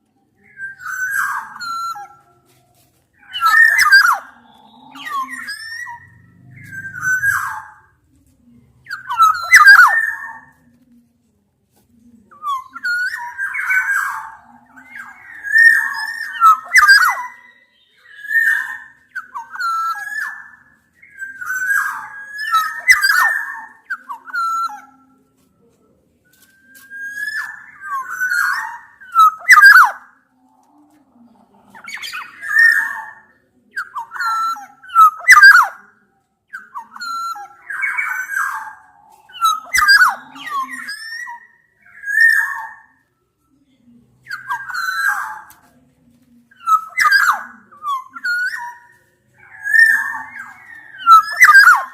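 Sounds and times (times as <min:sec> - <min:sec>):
birds calling with fluty whistles: 0:03.2 - 0:07.8, 0:08.9 - 0:10.4, 0:12.4 - 0:25.0, 0:26.3 - 0:30.0, 0:31.9 - 0:35.8, 0:36.5 - 0:42.9, 0:46.6 - 0:51.9.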